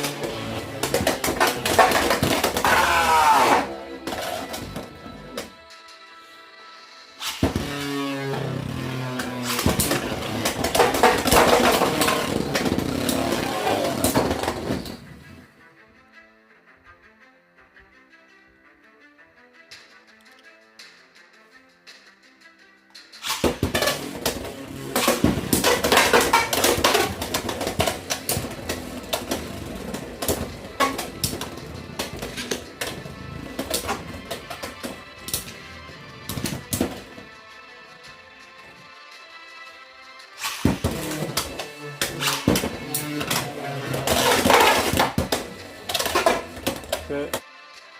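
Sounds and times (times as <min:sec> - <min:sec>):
spinning tops clashing and scraping: 0:23.2 - 0:35.6, 0:40.4 - 0:47.1
spinning tops whirring: 0:23.2 - 0:37.1.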